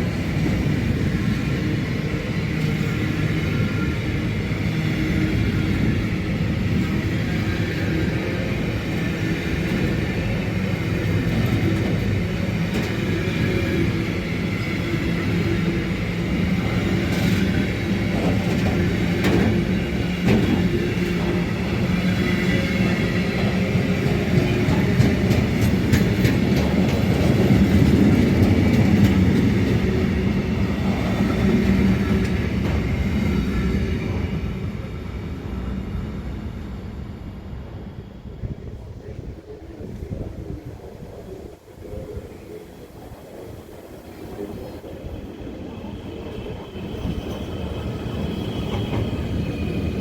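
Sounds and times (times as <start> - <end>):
train running hum: 0.0 - 50.0
wheels clicking over rail joints: 23.4 - 30.0.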